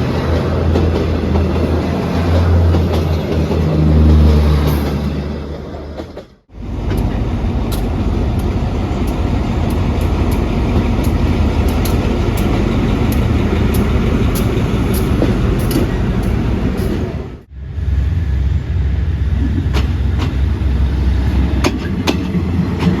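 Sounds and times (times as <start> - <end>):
wheels clicking over rail joints: 0.0 - 17.5, 19.5 - 23.0
train rumbling past: 0.0 - 23.0
low engine rumble: 4.8 - 22.7.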